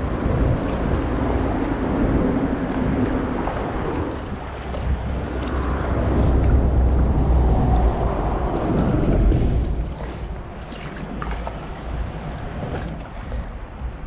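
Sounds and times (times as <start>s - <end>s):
highway traffic overhead: 0.0s - 14.0s
wind buffeting microphone: 0.0s - 14.0s.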